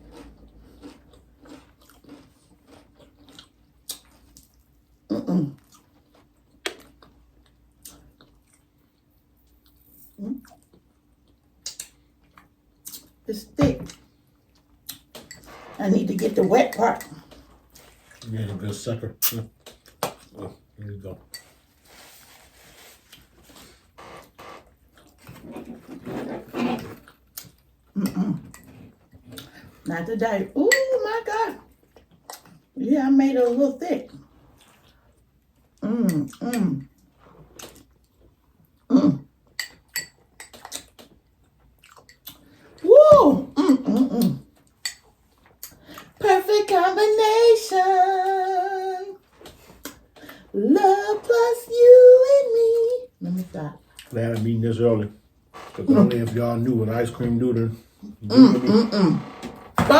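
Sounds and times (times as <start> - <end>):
chewing and crunching sandwich: 0.0 - 13.2, 21.7 - 29.8, 31.7 - 32.8, 34.1 - 42.8.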